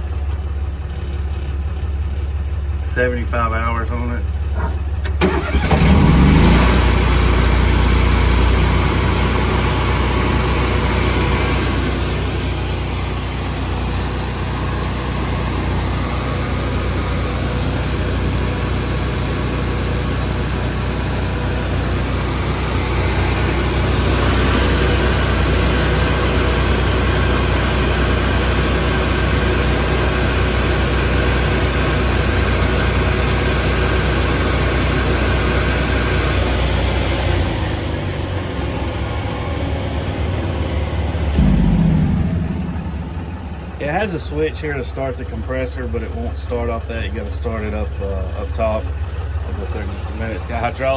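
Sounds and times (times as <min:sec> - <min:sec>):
generator engine running: 0:00.0 - 0:50.9
high steady whine: 0:41.4 - 0:45.1.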